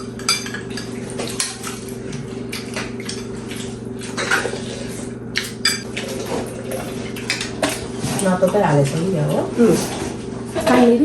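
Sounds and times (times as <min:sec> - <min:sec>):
utensils clinking against bowls: 0:00.0 - 0:01.9, 0:05.4 - 0:10.0
steady low hum: 0:00.0 - 0:11.0.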